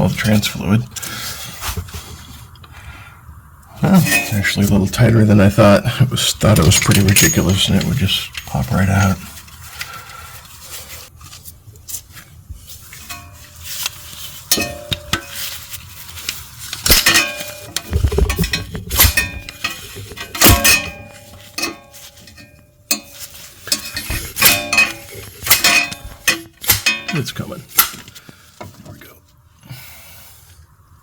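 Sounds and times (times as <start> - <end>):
metal tools clanking: 3.8 - 5.1, 6.3 - 9.4, 13.0 - 15.6, 16.8 - 28.8.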